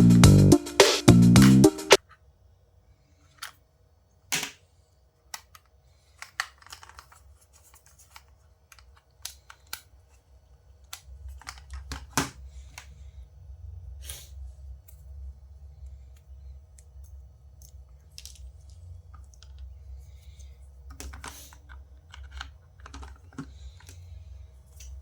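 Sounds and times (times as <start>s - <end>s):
small objects clicking and tapping: 5.3s - 9.8s, 16.7s - 19.7s, 20.4s - 24.0s.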